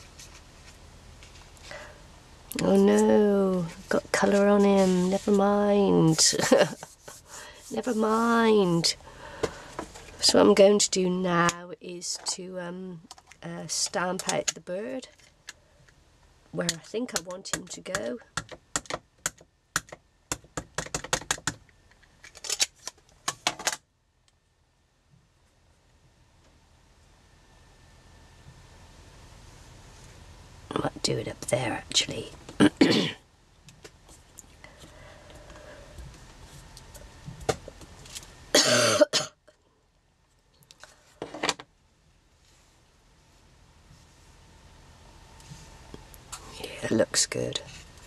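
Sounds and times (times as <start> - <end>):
rubber stamp clicks and taps: 16.7 - 21.6
woman coughing: 32.6 - 33.2, 38.5 - 39.4.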